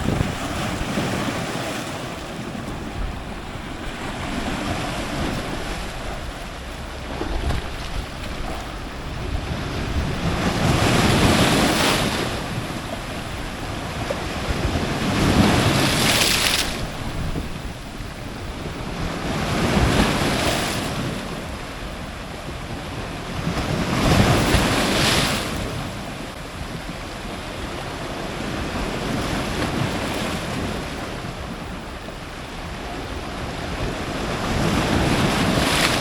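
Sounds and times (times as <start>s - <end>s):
surf breaking on rocks: 0.0s - 21.2s
wind buffeting microphone: 0.0s - 36.0s.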